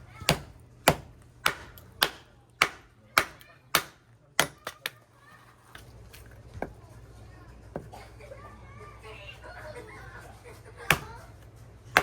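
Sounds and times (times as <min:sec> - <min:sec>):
axe chopping firewood: 0:00.0 - 0:05.0, 0:10.8 - 0:11.3.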